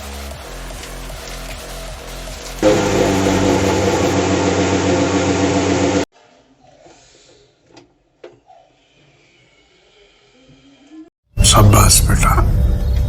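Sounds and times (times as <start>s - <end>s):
blender motor running: 2.3s - 6.1s.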